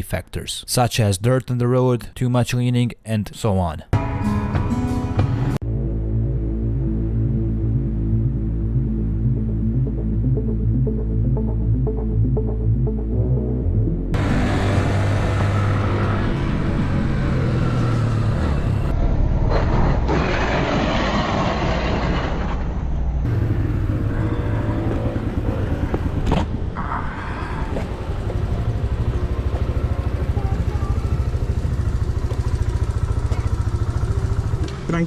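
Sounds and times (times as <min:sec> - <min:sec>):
road noise: 0:14.1 - 0:35.0
motorcycle engine running: 0:23.3 - 0:26.6, 0:27.4 - 0:35.0.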